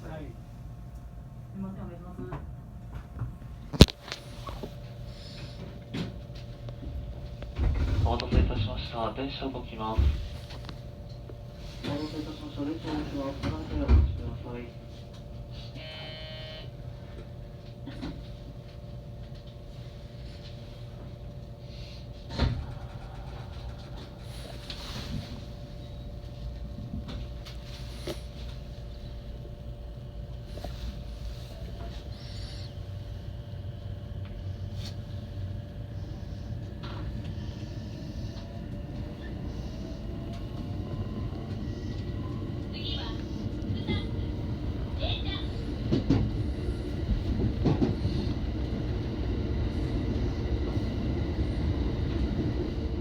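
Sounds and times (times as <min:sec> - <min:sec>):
electrical hum: 0:00.0 - 0:53.0
train low rumble: 0:00.0 - 0:53.0.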